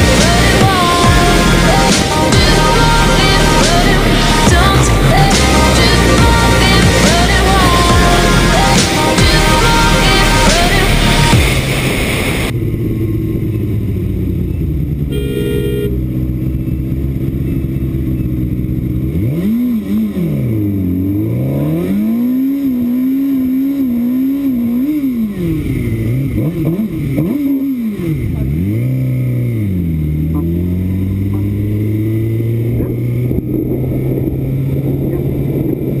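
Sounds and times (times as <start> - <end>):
motorcycle engine revving: 0.0 - 11.5, 12.4 - 36.0
car horn honk: 15.1 - 16.2.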